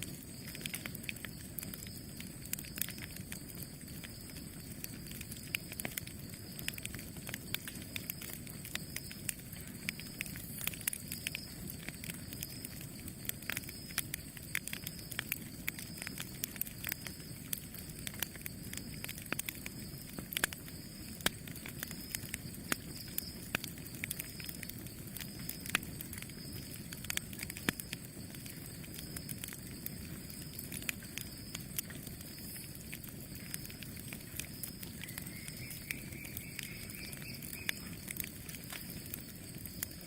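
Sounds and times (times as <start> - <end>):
fire crackling and popping: 0.0 - 40.0
low rumble of flames: 0.0 - 40.0.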